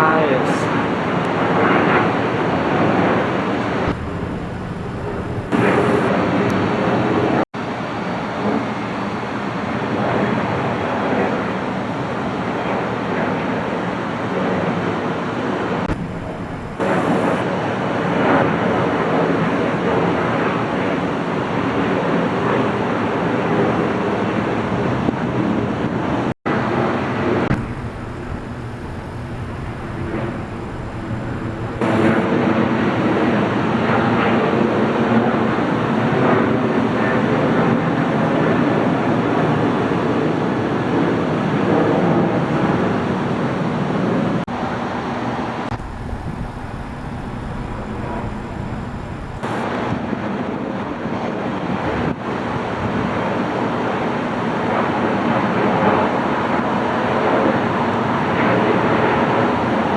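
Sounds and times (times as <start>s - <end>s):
jet aircraft rushing noise: 0.8s - 7.4s, 15.7s - 17.5s, 24.8s - 33.0s, 44.0s - 50.5s
wind on microphone: 1.2s - 7.4s, 15.8s - 17.5s, 23.9s - 32.6s, 45.2s - 53.4s.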